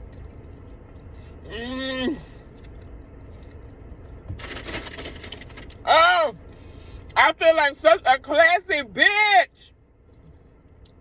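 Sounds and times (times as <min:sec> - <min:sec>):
chewing food: 0:02.4 - 0:04.1.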